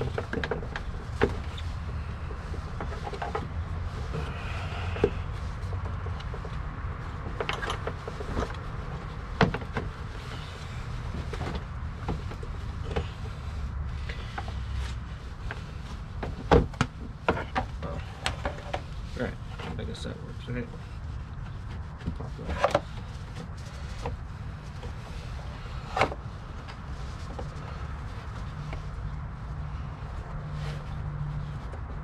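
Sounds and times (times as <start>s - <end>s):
steady low rumble: 0.0s - 32.0s
air filter scraping plastic housing: 15.5s - 28.9s.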